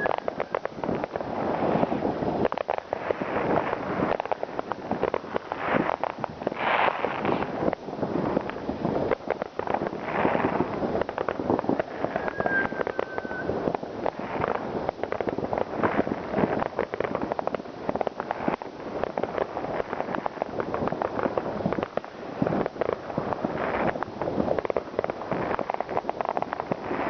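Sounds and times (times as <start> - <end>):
firework whistle: 0.0 - 0.8, 11.7 - 14.7
fireworks crackling and banging: 0.0 - 27.0.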